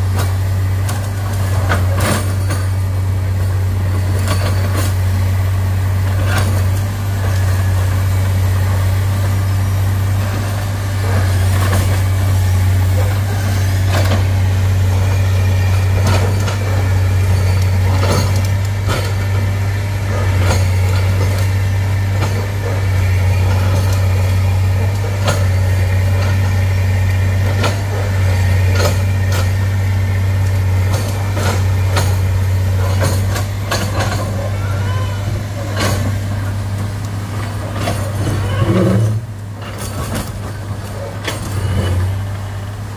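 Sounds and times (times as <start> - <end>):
heavy diesel engine running: 0.0 - 42.9.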